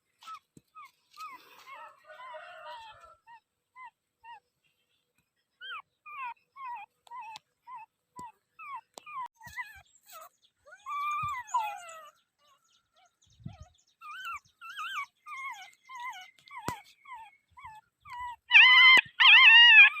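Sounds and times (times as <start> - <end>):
dog whining: 5.6 - 20.0.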